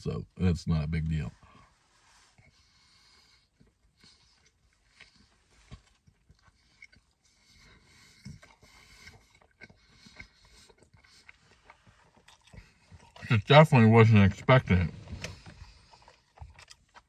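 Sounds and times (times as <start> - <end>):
faint chewing: 1.4 - 13.5, 14.3 - 17.0
soft mouth clicks and smacks: 8.0 - 13.3.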